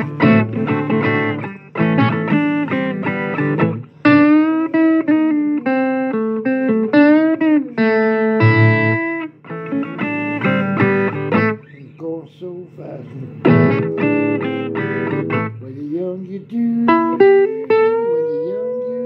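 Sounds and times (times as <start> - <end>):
person singing: 0.0 - 1.2, 15.3 - 19.0
blues guitar playing: 0.0 - 19.0.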